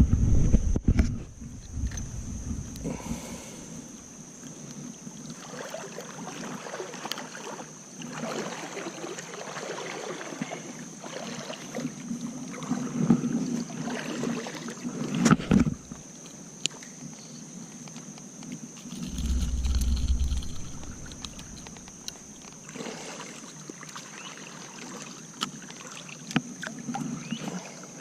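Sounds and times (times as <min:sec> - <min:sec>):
river water sloshing and splashing: 0:04.4 - 0:16.8, 0:18.8 - 0:28.0.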